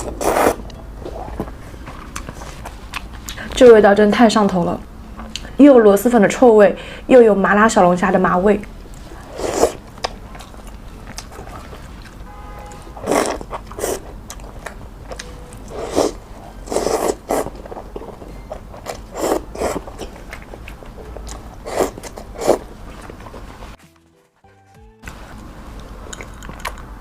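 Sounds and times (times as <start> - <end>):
person biting and chewing food: 0.0 - 0.7, 1.3 - 3.4, 8.9 - 12.2, 13.0 - 24.1.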